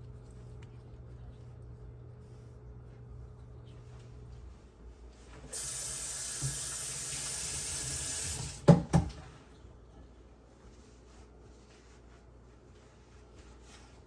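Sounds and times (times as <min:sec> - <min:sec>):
water running from a tap: 0:05.5 - 0:08.6.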